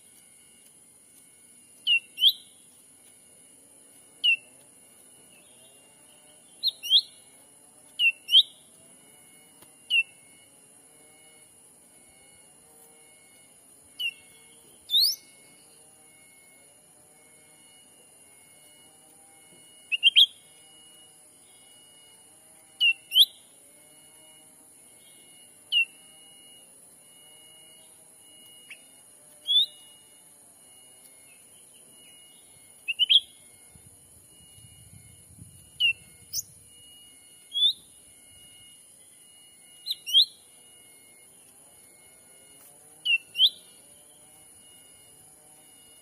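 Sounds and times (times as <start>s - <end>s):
steady high-pitched whine: 0.0s - 46.0s
sharp rising bird chirps: 1.8s - 2.6s, 4.2s - 4.5s, 5.3s - 7.4s, 8.0s - 8.7s, 9.9s - 10.3s, 13.9s - 15.8s, 19.8s - 20.6s, 22.8s - 23.5s, 25.7s - 26.0s, 28.6s - 30.0s, 31.2s - 33.5s, 35.7s - 40.5s, 43.0s - 44.5s.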